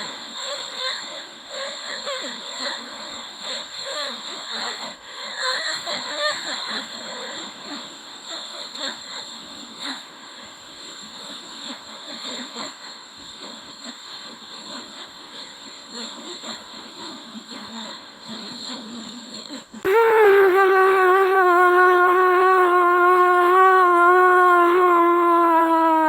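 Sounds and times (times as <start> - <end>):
synthetic voice babbling: 19.9 - 26.0.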